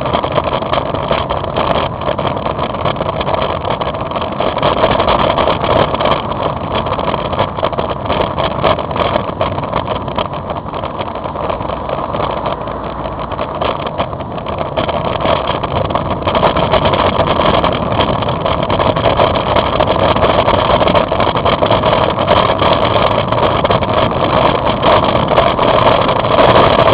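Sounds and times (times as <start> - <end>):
motorbike engine running: 0.0 - 26.9
wind noise: 0.0 - 26.9.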